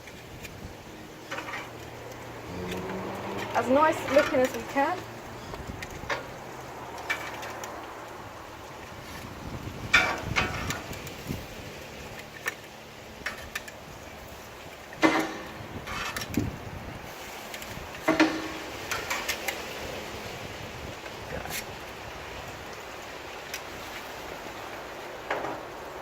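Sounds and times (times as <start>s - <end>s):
metal skewers clinking: 0.0s - 7.9s, 12.0s - 16.5s, 17.1s - 19.8s.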